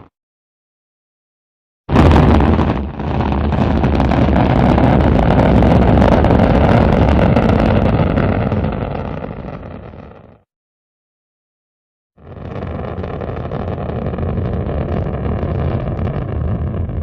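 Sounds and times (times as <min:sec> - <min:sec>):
rocket engines rumbling: 0:01.9 - 0:10.0, 0:12.3 - 0:17.0.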